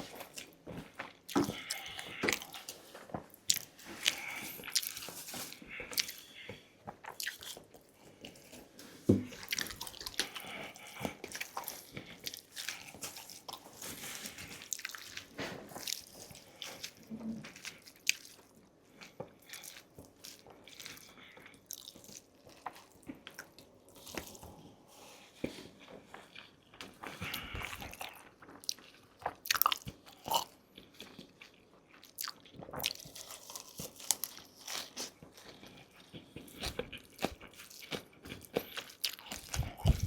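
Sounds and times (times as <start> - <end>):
wet chewing with lip smacks: 0.1 - 8.4, 9.3 - 13.6, 26.1 - 40.0.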